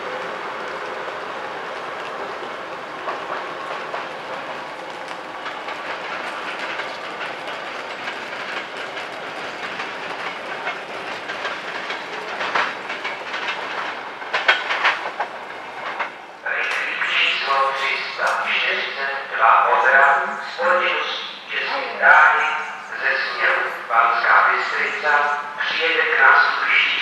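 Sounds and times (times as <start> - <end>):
train wheels clattering over rails: 0.0 - 20.0.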